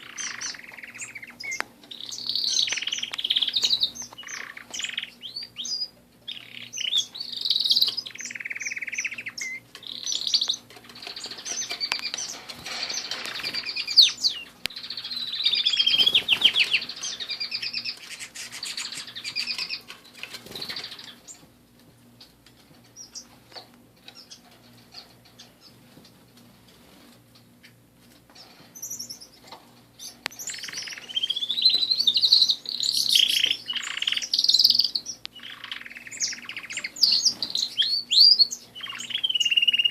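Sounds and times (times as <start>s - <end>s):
canaries singing and trilling: 0.0s - 39.9s.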